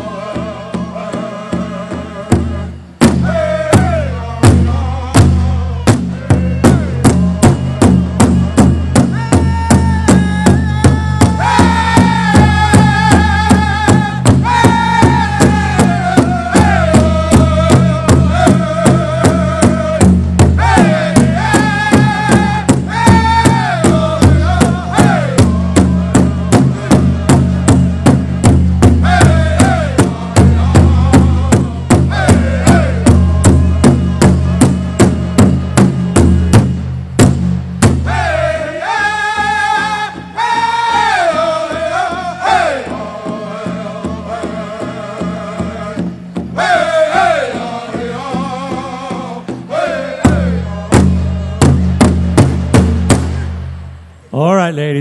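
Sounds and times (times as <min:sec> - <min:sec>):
big drum beating: 0:00.0 - 0:54.2
high-pitched voices singing: 0:09.2 - 0:27.8, 0:38.1 - 0:46.0, 0:46.6 - 0:51.7.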